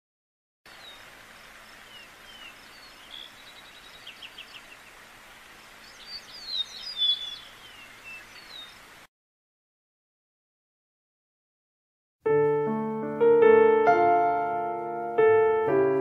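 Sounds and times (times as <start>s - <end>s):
songbirds calling: 0.7s - 9.1s
steady background hiss: 0.7s - 9.1s.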